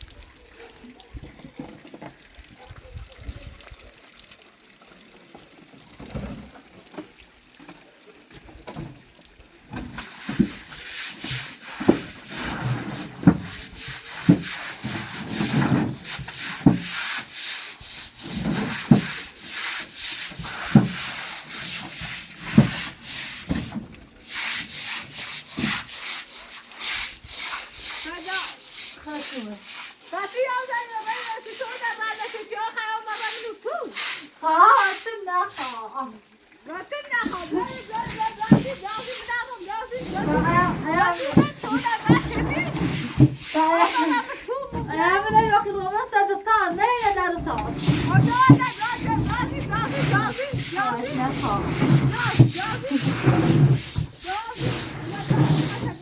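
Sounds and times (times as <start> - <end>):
scraping and rubbing strokes: 10.0 - 32.4, 37.2 - 45.7, 46.8 - 56.0.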